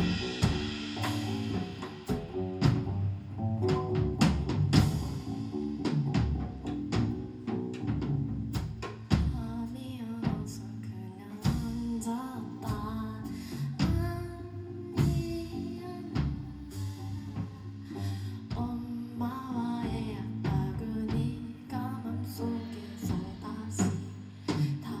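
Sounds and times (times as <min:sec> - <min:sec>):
drum kit hits: 0:00.0 - 0:09.4
live band music: 0:00.0 - 0:10.8, 0:11.4 - 0:25.0
person singing: 0:09.2 - 0:25.0.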